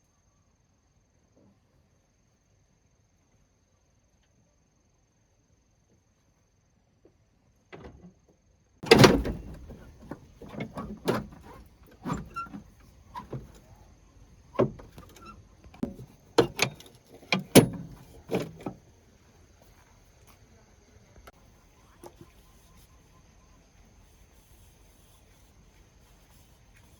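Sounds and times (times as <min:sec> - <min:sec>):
tools knocking and clanking: 0:08.8 - 0:13.7, 0:14.6 - 0:18.8.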